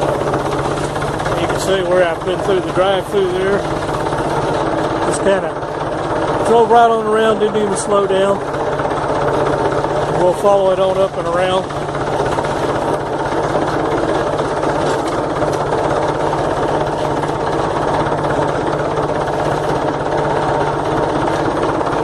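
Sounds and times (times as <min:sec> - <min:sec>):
tractor engine under load: 0:00.0 - 0:22.0.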